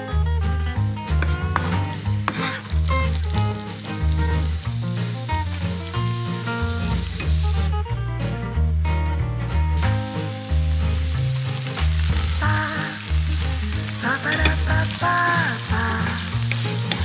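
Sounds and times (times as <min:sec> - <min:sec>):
background music with bass line: 0:00.0 - 0:17.0
meat sizzling in oil: 0:01.6 - 0:07.7, 0:09.8 - 0:17.0.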